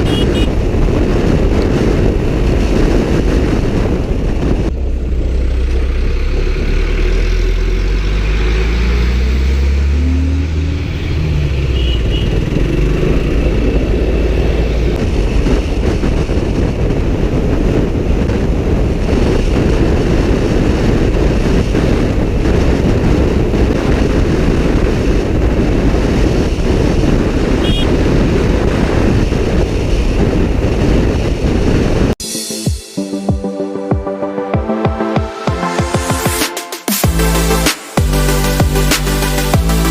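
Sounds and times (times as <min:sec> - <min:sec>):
motorcycle engine revving: 0:00.0 - 0:03.7, 0:04.3 - 0:30.8
wind buffeting on microphone: 0:00.0 - 0:32.2
road rush: 0:00.0 - 0:39.9.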